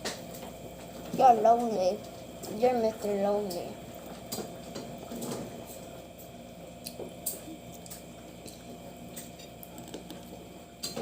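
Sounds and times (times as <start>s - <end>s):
wet eating clicks and squishes: 6.7s - 10.4s.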